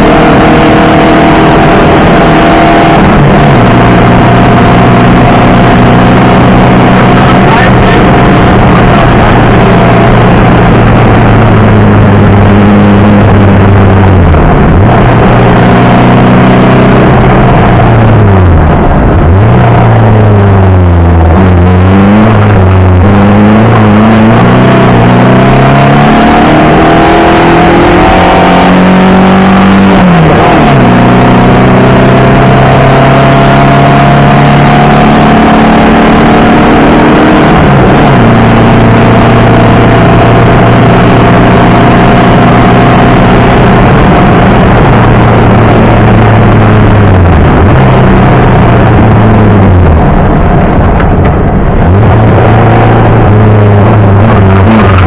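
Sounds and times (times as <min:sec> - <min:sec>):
loud rally car engine revving: 0:00.0 - 0:55.0.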